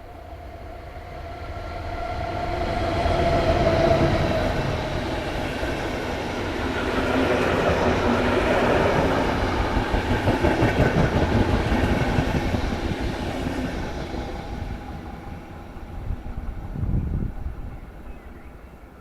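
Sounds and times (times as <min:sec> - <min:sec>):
train wheels clattering on rails: 0:04.4 - 0:14.9.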